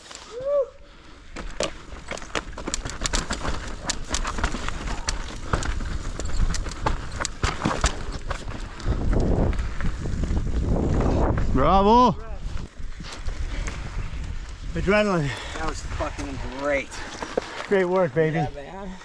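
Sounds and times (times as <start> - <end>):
bike rattling and knocking: 1.6 - 9.0
wind on microphone: 8.3 - 14.9.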